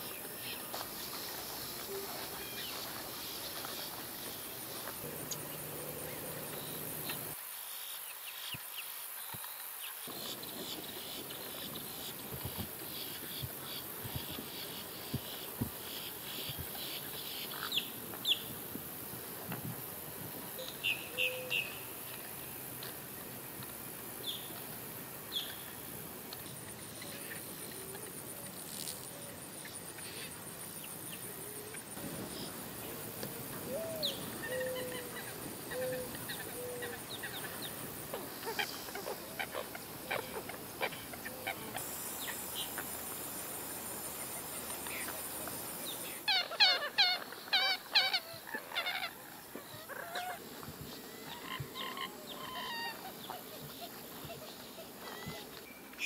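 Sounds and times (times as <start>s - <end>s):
birds calling: 33.6s - 43.0s.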